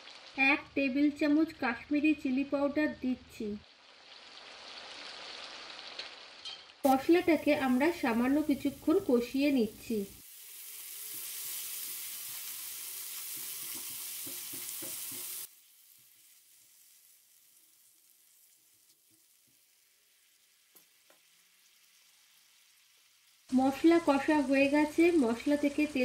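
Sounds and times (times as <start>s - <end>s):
paste sizzling in hot oil: 3.7s - 26.0s
spatula stirring: 13.1s - 15.5s.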